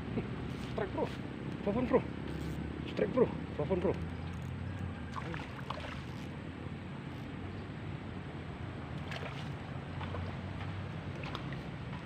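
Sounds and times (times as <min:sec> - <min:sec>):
flowing river water: 0:00.0 - 0:12.0.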